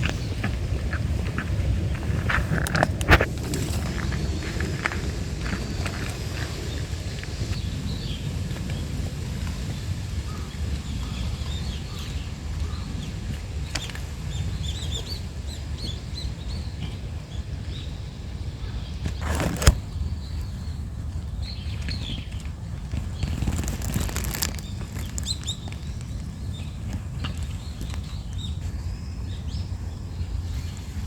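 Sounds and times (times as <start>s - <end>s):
wind buffeting microphone: 0.0s - 31.0s
small birds chirping: 10.3s - 31.0s
rustle: 18.9s - 20.6s, 21.5s - 29.6s.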